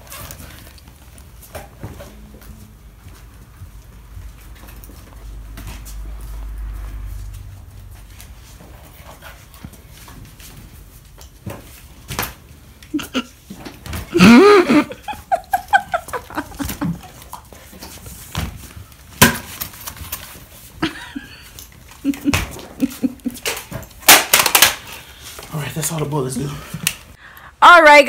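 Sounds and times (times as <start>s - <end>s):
footsteps on tile floor: 0.0s - 19.2s.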